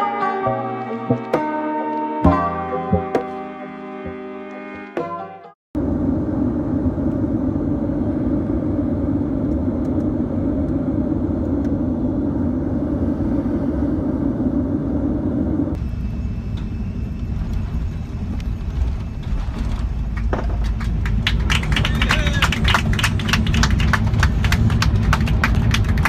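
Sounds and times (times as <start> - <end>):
jet airliner engines rumbling: 5.8 - 26.0.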